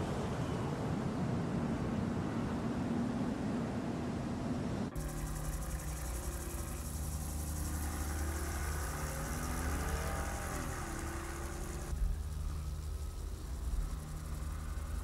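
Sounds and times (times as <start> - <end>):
car engine droning: 5.0 - 15.0.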